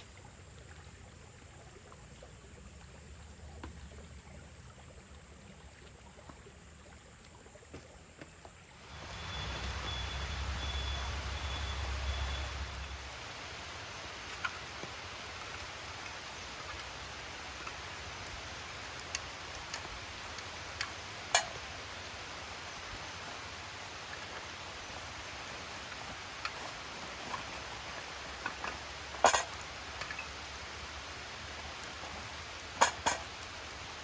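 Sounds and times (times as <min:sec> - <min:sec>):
steady rain hiss: 0:00.0 - 0:34.0
raindrops tapping on surfaces: 0:03.5 - 0:03.8, 0:07.7 - 0:34.0.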